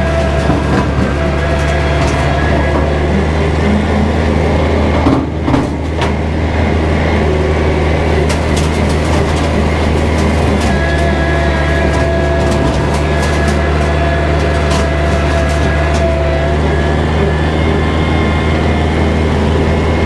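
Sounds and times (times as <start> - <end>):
rotary mower cutting brush: 0.0 - 5.0, 5.8 - 20.0
tractor diesel engine running: 0.0 - 20.0
sharp clicks and cracks: 7.7 - 16.5.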